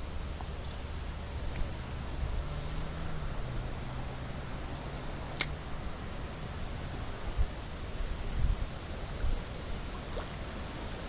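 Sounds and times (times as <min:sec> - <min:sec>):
wind rumble on microphone: 0:00.0 - 0:11.0
sharp click: 0:05.4 - 0:05.6.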